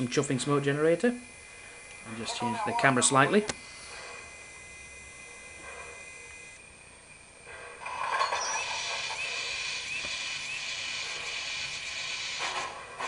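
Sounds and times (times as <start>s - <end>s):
steam locomotive chuffs: 7.4s - 13.0s
steam hiss: 8.6s - 13.0s.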